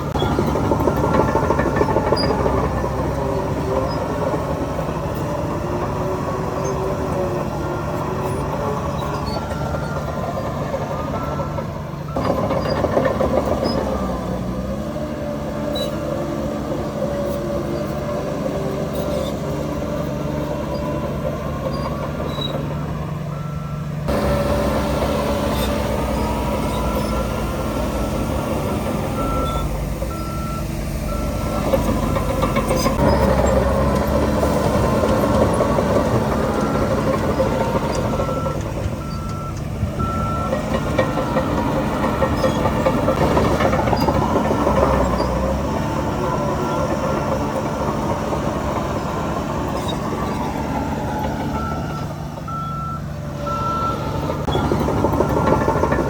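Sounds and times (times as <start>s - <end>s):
heavy diesel engines running: 0.0s - 56.0s
reversing alarm beeps: 8.2s - 12.9s, 23.3s - 33.5s, 35.8s - 43.2s, 51.0s - 56.0s.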